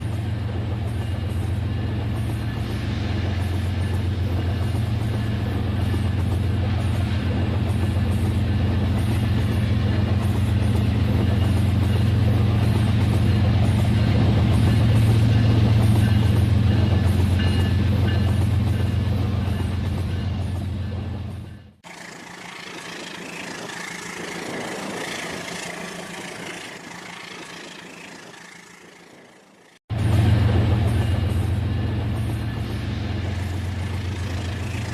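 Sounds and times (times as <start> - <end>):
toy train motor humming: 21.9 - 29.8.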